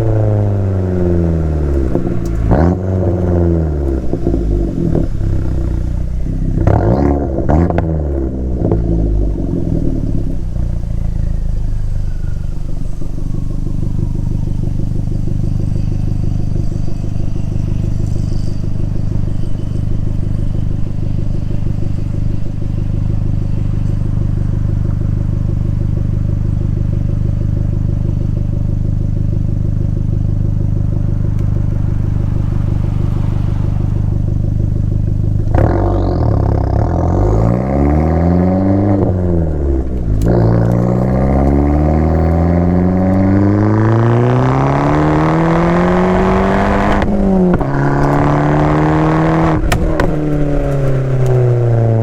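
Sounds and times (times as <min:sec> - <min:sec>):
car engine revving and idling: 0:00.0 - 0:52.0
faint falling whistle: 0:09.3 - 0:28.8, 0:29.5 - 0:37.8.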